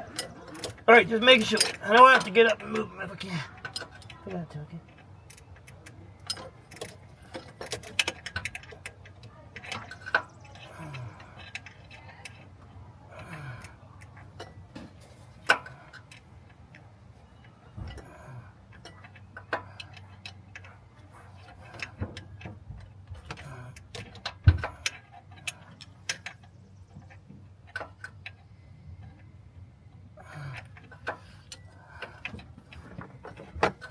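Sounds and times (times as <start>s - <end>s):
hand tools clinking on metal: 0.0s - 4.3s.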